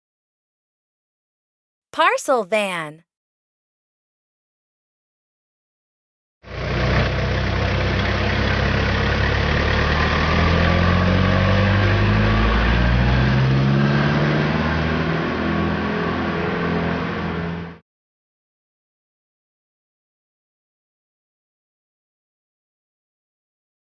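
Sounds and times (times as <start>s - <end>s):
van engine accelerating: 6.5s - 17.8s.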